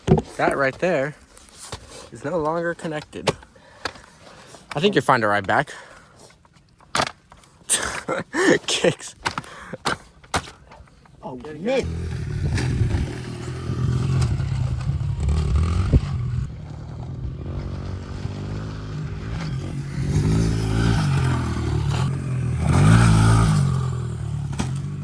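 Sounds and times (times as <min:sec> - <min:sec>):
small motorcycle engine revving: 0:11.8 - 0:25.0.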